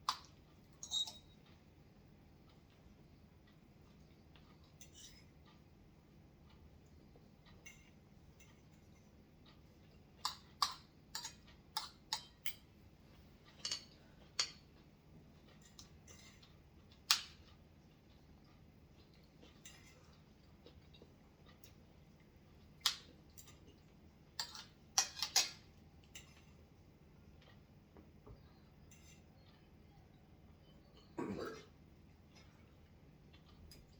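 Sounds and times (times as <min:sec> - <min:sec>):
cutlery clinking against dishes: 0:00.1 - 0:01.4, 0:04.8 - 0:05.4, 0:07.5 - 0:09.0, 0:10.2 - 0:12.7, 0:13.6 - 0:14.7, 0:24.4 - 0:26.6, 0:28.9 - 0:29.5.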